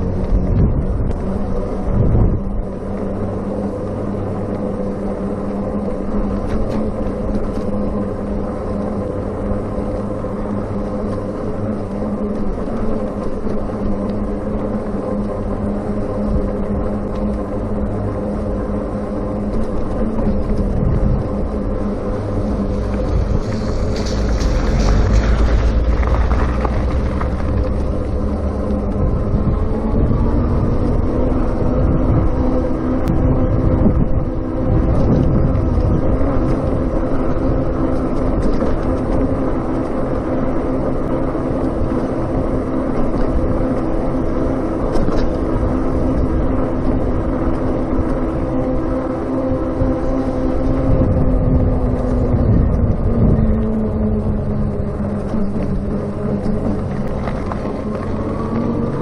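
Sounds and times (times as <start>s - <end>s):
electric motor hum: 0.0s - 41.3s
road rumble: 0.0s - 59.0s
wind: 0.0s - 59.0s.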